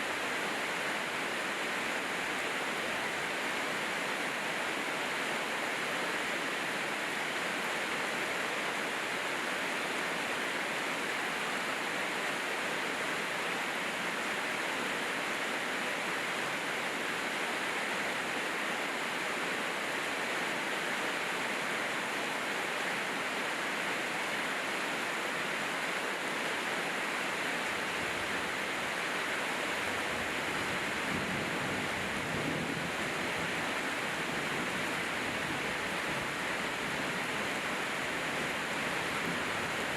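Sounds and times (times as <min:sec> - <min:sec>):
heavy rain hissing: 0:24.2 - 0:39.9.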